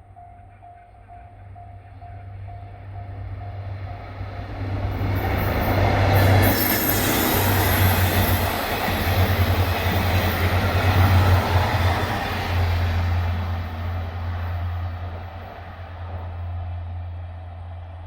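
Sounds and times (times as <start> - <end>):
train passing on rails: 0.0 - 18.0.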